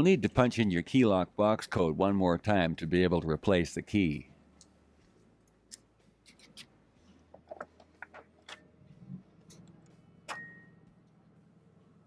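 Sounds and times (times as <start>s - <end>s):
sharp metal clack with ring: 10.3s - 10.7s.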